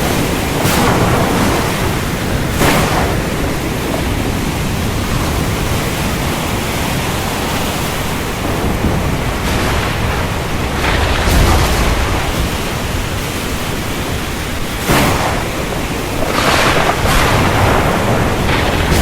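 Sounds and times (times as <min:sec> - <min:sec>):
thunder crashes: 0:00.0 - 0:06.6, 0:08.0 - 0:19.0
heavy rain: 0:00.0 - 0:19.0
thunder rumbling: 0:00.0 - 0:19.0.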